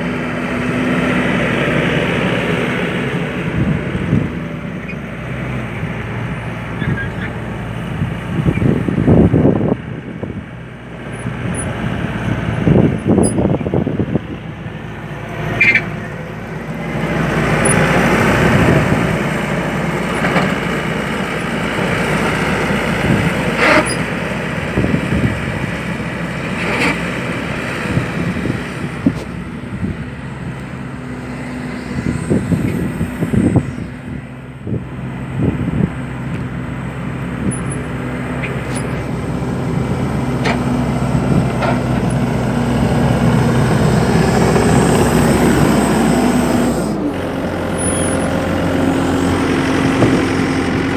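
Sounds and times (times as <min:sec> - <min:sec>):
loader engine running: 0:00.0 - 0:50.9.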